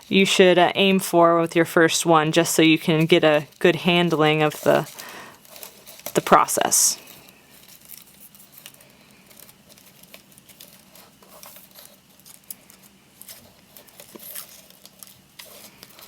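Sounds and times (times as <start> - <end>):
palm fronds crinkling and rustling: 3.3 - 16.0.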